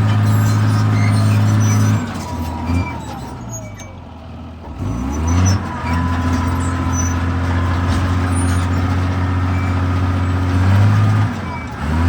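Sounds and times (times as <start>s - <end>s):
bulldozer diesel engine revving: 0.0s - 12.0s.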